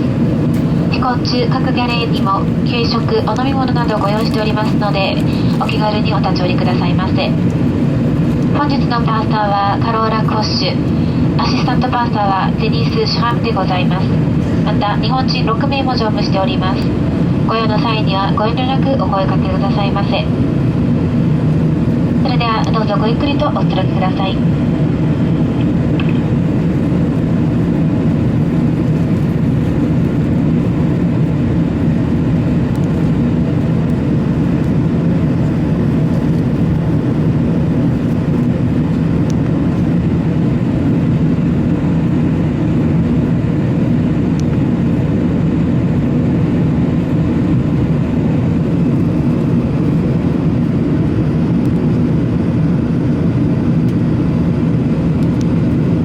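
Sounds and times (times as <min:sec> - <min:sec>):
low rumble of jet engines: 0:00.0 - 0:56.0
rushing airflow: 0:04.4 - 0:06.2, 0:10.3 - 0:12.2.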